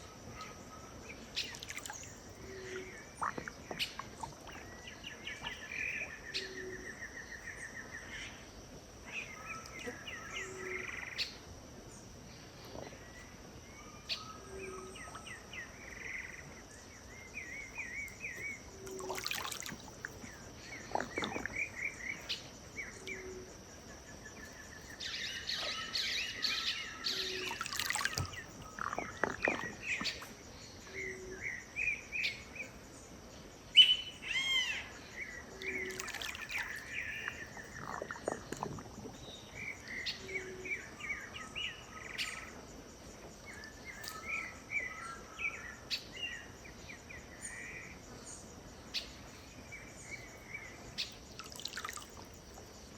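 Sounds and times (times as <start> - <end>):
birds singing and calling: 0.0 - 8.4, 12.4 - 33.1, 33.7 - 52.9.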